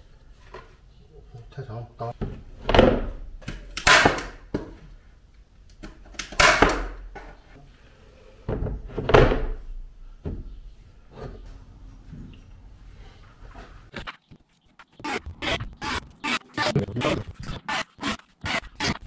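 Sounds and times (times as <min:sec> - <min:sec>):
wooden boards knocking and thudding: 0:02.2 - 0:03.2, 0:08.5 - 0:10.5.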